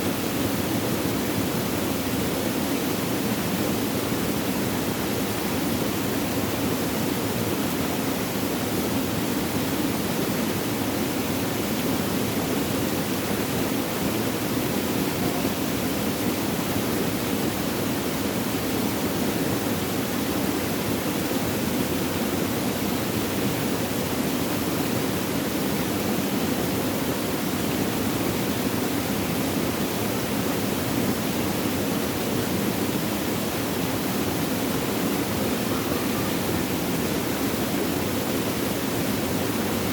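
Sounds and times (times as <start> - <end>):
water flowing: 25.1 - 39.9.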